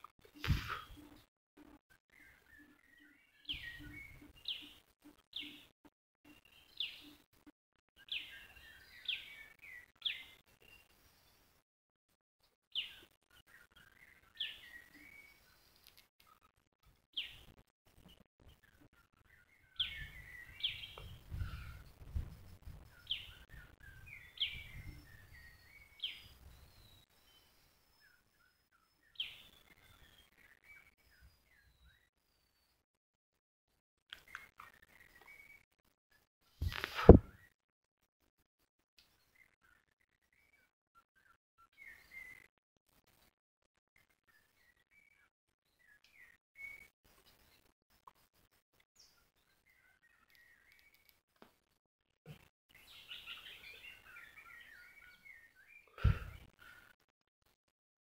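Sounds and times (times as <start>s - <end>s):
birds chirping: 0.1s - 5.7s, 6.3s - 7.3s, 8.0s - 11.5s, 12.7s - 16.5s, 17.1s - 32.8s, 36.6s - 37.5s, 52.3s - 57.0s.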